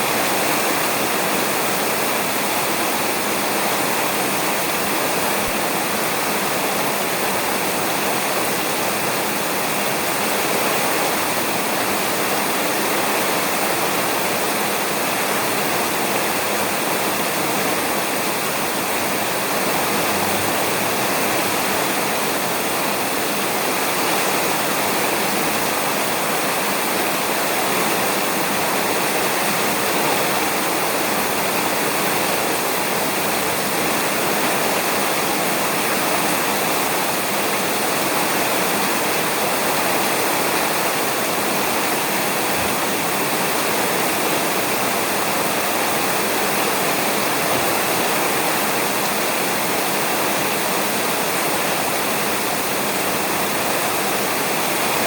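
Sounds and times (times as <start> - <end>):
rain falling on a roof: 0.0 - 55.0.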